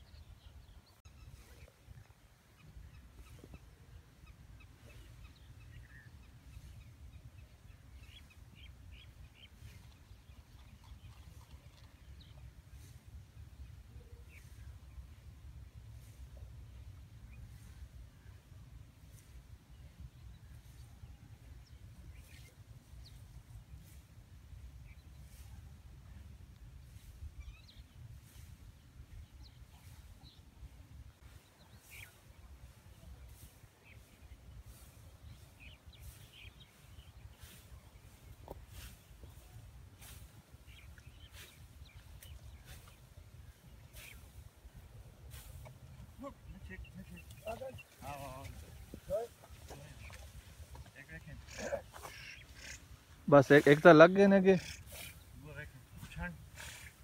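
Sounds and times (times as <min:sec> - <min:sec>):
small birds chirping: 0:00.0 - 0:57.0
faint bird chirps: 0:31.2 - 0:53.8.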